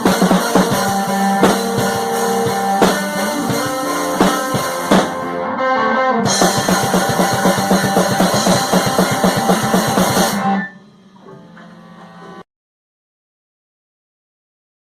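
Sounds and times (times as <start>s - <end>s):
rock band playing: 0.0s - 10.7s.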